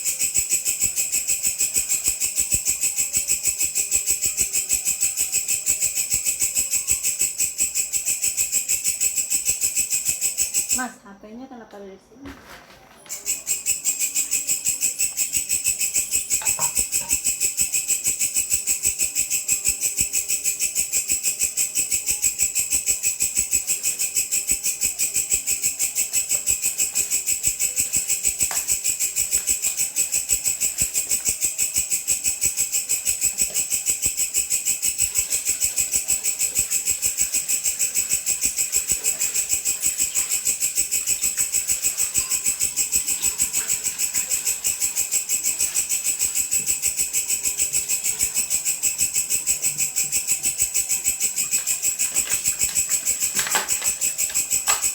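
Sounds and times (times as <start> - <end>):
grasshopper buzzing: 13.2 - 54.9.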